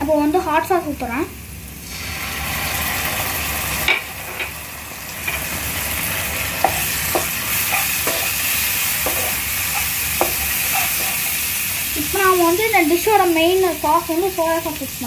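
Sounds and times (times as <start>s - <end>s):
food sizzling in oil: 0.1s - 15.0s
spatula knocking and scraping pan: 5.2s - 11.9s.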